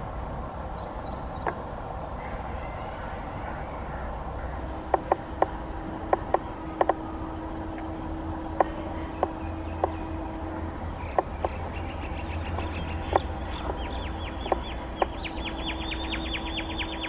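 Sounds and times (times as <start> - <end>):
low steady rumble: 0.0 - 17.0
bird chirping: 0.8 - 17.0
sharp clicks: 4.9 - 7.0, 12.5 - 15.3.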